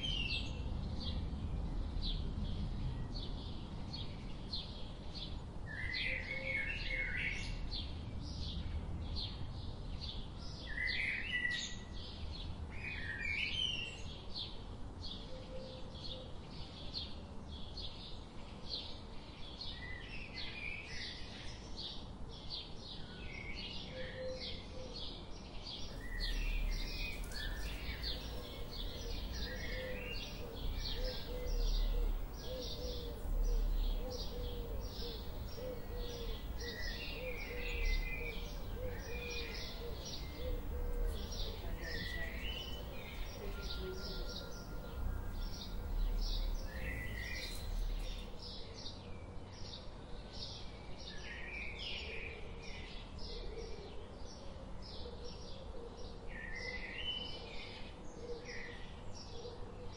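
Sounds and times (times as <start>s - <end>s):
songbirds chirping: 0.0s - 59.9s
low repeated bird call: 25.9s - 48.6s
warbled bird phrases: 26.0s - 48.4s.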